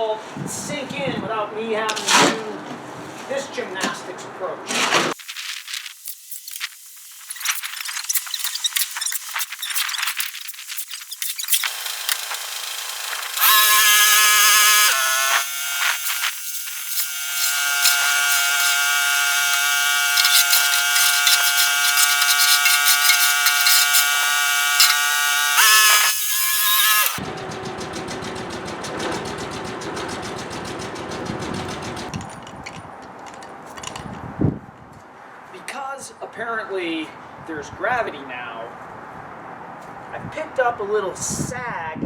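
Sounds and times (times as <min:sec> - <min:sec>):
power drill whining: 0:08.0 - 0:27.2.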